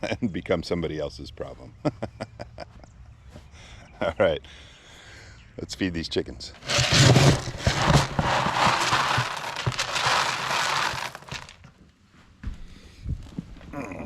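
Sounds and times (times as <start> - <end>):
dry feed crackling and rustling: 6.6 - 11.6.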